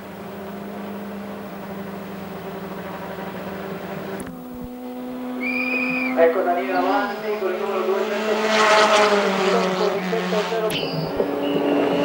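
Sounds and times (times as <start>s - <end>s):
race car engine running: 0.0s - 12.0s
steady hum: 0.0s - 12.0s
high whistle-like tone: 5.3s - 6.2s, 10.7s - 12.0s.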